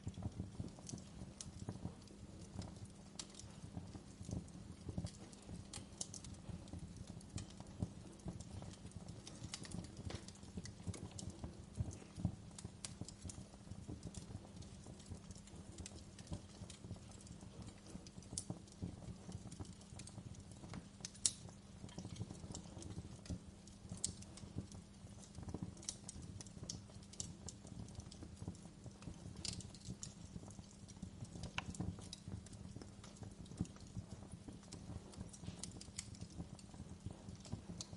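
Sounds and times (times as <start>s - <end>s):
low steady fire rumble: 0.0s - 37.9s
wood fire crackling and popping: 0.0s - 37.9s.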